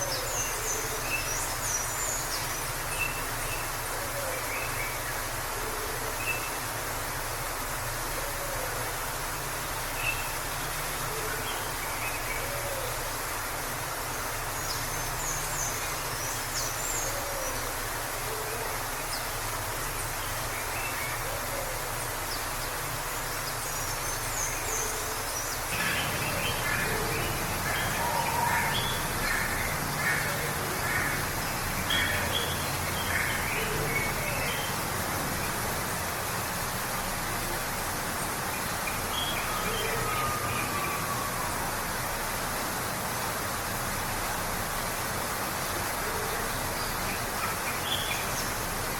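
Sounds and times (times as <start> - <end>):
waterfall rushing: 0.0 - 48.9
birds chirping: 23.4 - 34.8.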